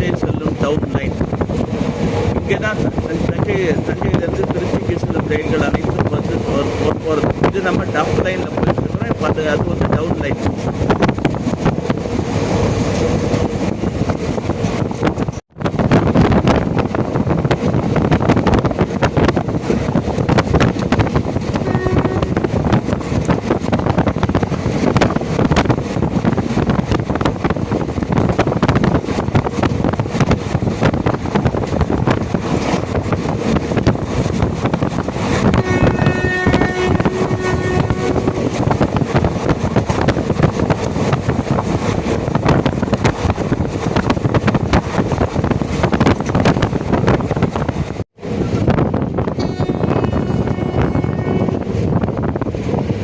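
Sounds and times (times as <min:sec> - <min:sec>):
train wheels rumbling: 0:00.0 - 0:53.0
wind rushing across microphone: 0:00.0 - 0:53.0
train horn: 0:21.6 - 0:22.5, 0:35.5 - 0:38.8, 0:49.4 - 0:51.7.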